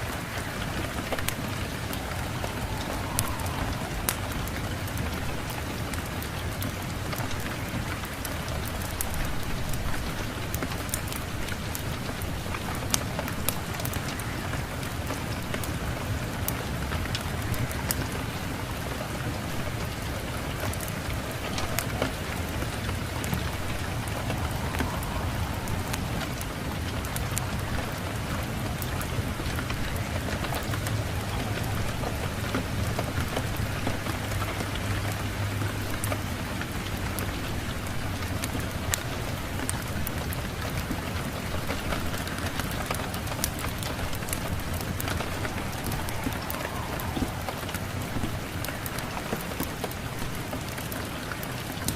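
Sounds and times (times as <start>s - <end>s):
low rumble: 0.0s - 6.4s, 21.0s - 34.7s, 42.5s - 49.4s
rain falling: 0.0s - 51.9s
sharp crackles: 0.0s - 51.9s.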